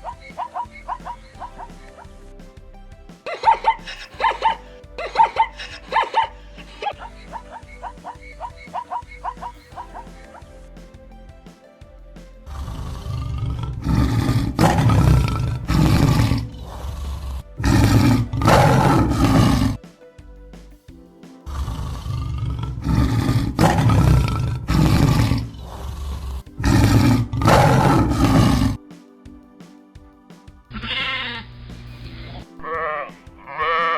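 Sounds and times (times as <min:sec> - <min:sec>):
big cat roaring: 0:12.9 - 0:16.5, 0:17.6 - 0:19.8, 0:22.2 - 0:26.0, 0:26.6 - 0:28.8.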